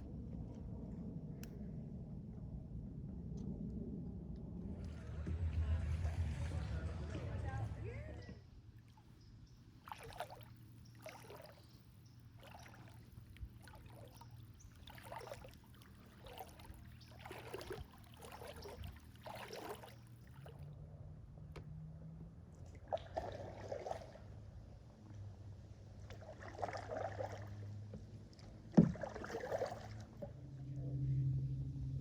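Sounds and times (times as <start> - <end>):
faint low hum: 0.0 - 32.0
kayak paddles splashing: 4.7 - 20.7, 22.6 - 30.6.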